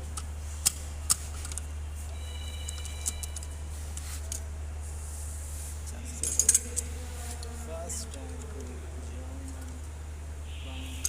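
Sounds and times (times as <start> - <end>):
steady low hum: 0.0 - 11.0
metallic clicks of hand tools: 6.2 - 6.9.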